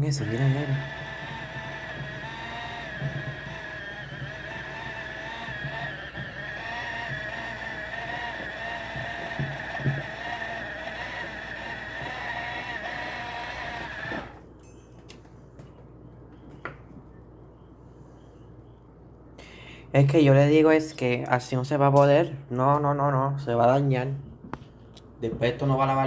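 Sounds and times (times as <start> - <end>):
washing machine motor whine: 0.0 - 14.4.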